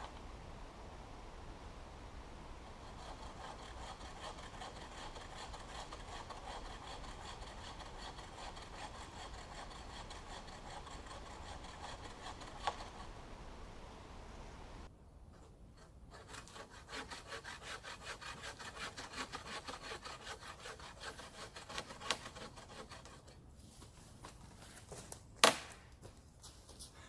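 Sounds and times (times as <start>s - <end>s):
chain saw rasping through wood: 2.8s - 13.1s, 16.1s - 23.4s.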